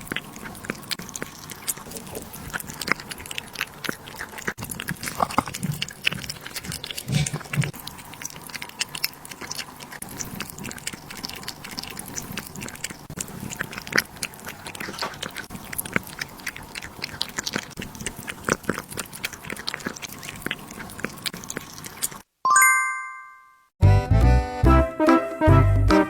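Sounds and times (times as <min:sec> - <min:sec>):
animal crunching food: 0:00.0 - 0:22.3
short bright chime: 0:22.5 - 0:23.7.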